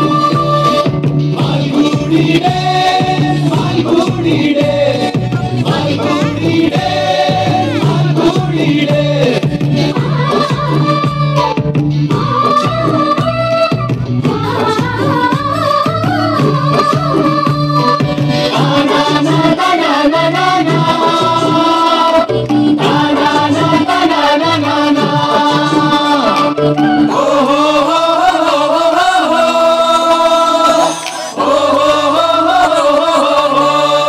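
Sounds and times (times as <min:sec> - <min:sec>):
band playing live music: 0:00.0 - 0:27.4
person singing wavering melody: 0:03.5 - 0:09.1, 0:21.1 - 0:28.0.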